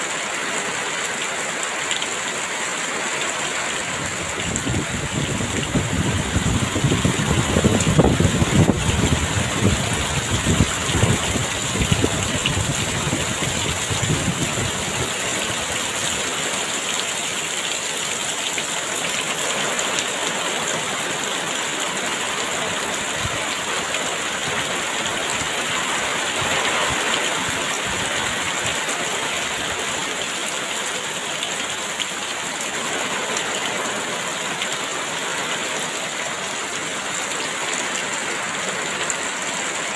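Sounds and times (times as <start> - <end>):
heavy rain hissing: 0.0 - 39.9
strong wind gusts rumbling: 3.9 - 15.9.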